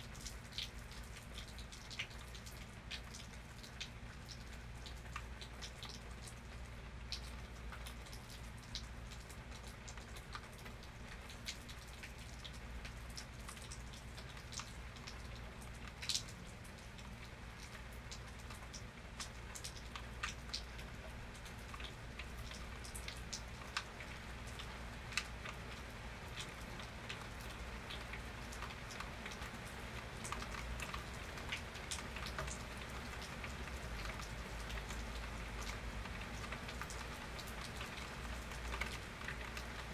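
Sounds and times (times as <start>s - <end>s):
rain drops ticking on hard surface: 0.0s - 39.9s
rain hiss: 0.0s - 39.9s.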